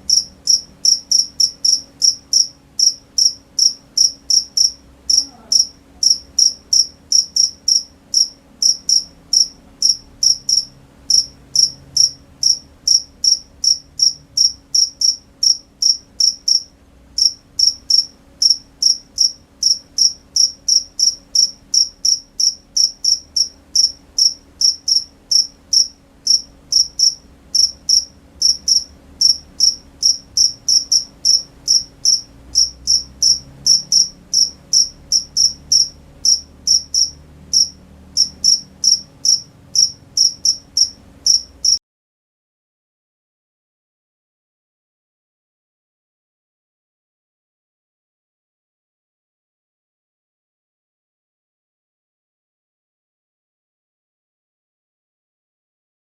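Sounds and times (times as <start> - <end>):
cricket chirping: 0.0 - 41.8.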